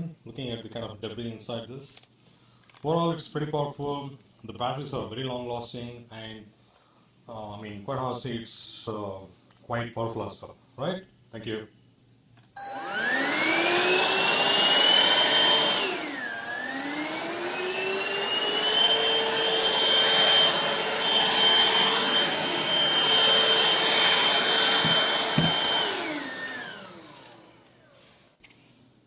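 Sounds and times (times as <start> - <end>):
vacuum cleaner motor whining: 12.6 - 28.2
short knocks: 24.8 - 25.6.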